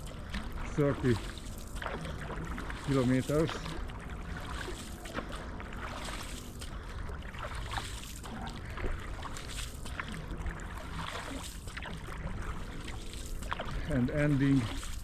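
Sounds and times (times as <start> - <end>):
canoe paddle strokes in water: 0.0 - 15.0
water splashes and trickles: 0.0 - 15.0.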